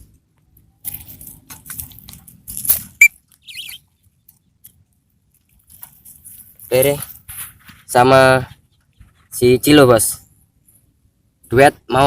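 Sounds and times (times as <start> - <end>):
light rustling and patter: 0.0 - 10.9
pet bird squeak and chirp: 3.4 - 3.9.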